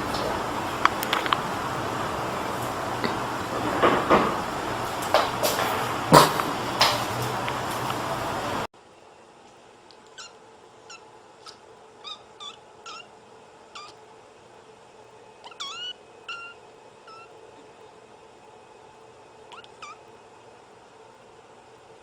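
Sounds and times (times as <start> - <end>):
kitten mewing: 10.1 - 13.1, 13.8 - 14.0, 15.4 - 17.3, 19.5 - 20.0.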